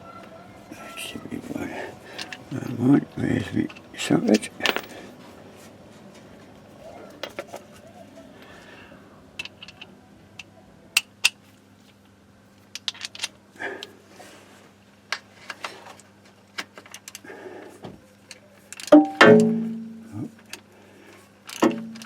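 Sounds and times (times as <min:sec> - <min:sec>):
faint steady hum: 0:00.0 - 0:22.0
metal tools clinking and rattling: 0:01.4 - 0:05.1
loud metallic clang: 0:19.0 - 0:20.0.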